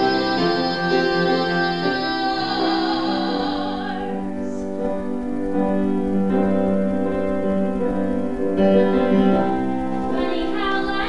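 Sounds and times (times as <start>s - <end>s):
held vocal note: 0.0s - 4.7s
piano chords: 0.0s - 11.0s.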